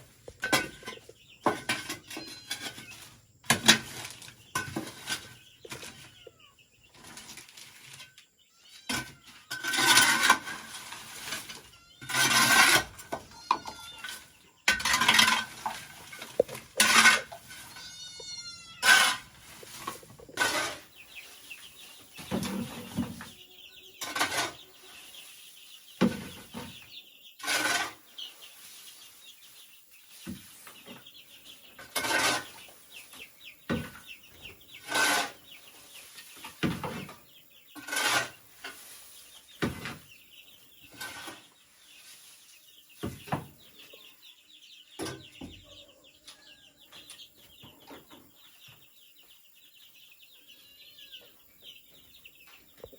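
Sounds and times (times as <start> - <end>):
knocks and scrapes on bamboo: 0.0 - 6.3, 6.9 - 23.4, 24.0 - 29.0, 30.0 - 44.0, 44.9 - 45.7.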